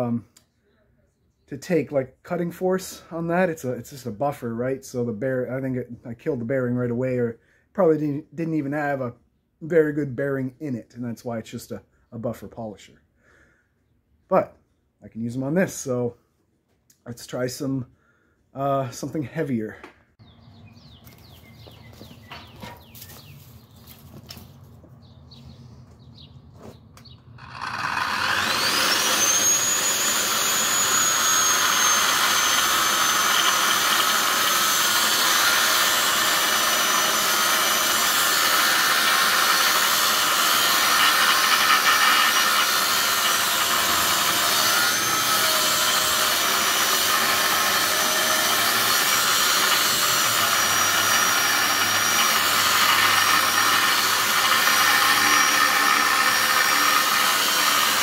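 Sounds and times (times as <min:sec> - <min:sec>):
cut-off saw cutting steel: 0:27.4 - 0:58.0.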